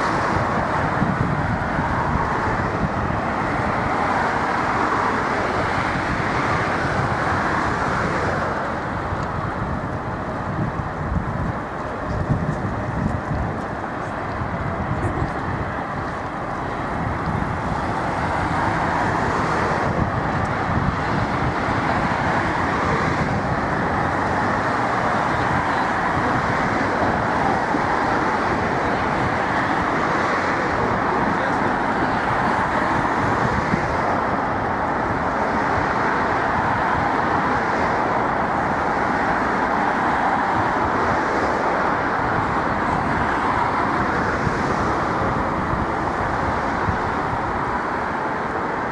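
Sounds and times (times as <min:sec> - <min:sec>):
city road traffic: 0:00.0 - 0:48.9.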